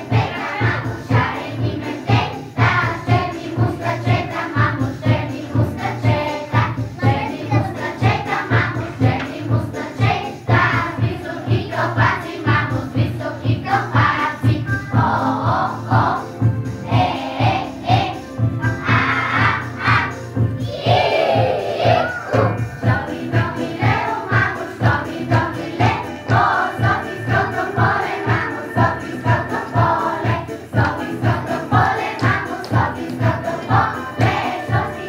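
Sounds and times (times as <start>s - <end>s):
group of voices singing: 0.0s - 35.0s
steady even beat: 13.9s - 34.9s.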